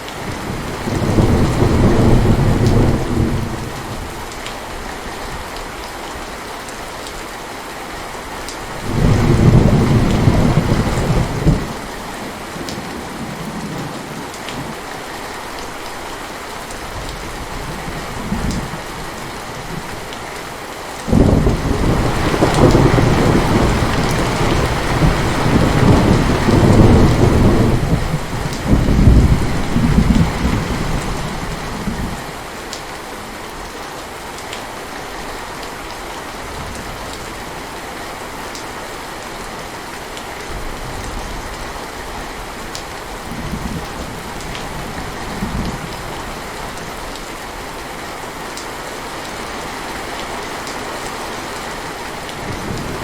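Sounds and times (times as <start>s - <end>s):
heavy rain falling: 0.0s - 53.0s
thunder rumbling: 0.3s - 4.1s, 8.8s - 14.8s, 21.1s - 32.3s, 52.4s - 53.0s.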